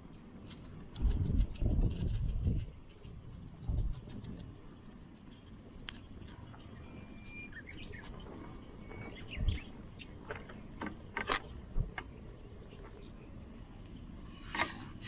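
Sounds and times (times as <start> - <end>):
outdoor background noise: 0.0 - 15.0
sharp clicks: 0.1 - 8.2.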